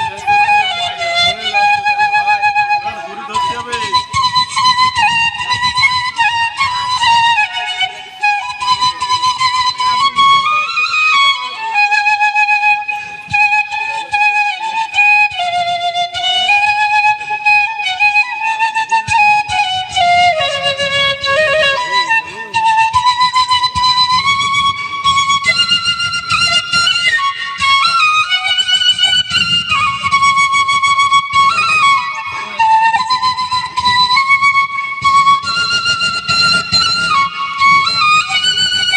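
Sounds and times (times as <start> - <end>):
flute playing slow melody: 0.0 - 38.9.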